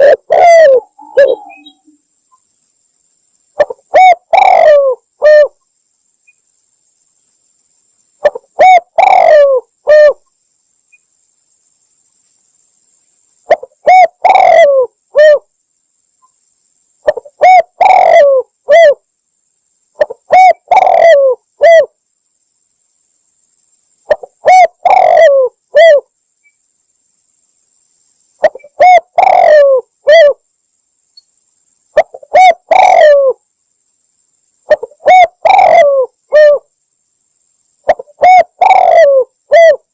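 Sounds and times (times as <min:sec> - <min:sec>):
dove cooing: 0:00.0 - 0:01.9, 0:03.6 - 0:05.6, 0:08.2 - 0:10.2, 0:13.5 - 0:15.5, 0:17.0 - 0:19.0, 0:20.0 - 0:21.9, 0:24.1 - 0:26.1, 0:28.4 - 0:30.4, 0:32.0 - 0:33.4, 0:34.7 - 0:36.7, 0:37.9 - 0:39.9.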